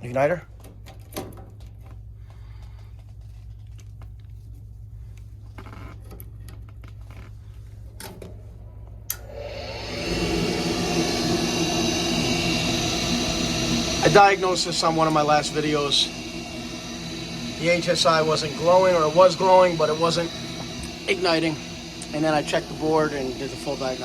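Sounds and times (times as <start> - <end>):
low steady hum: 0.0 - 24.0
furnace motor whirring: 9.1 - 24.0.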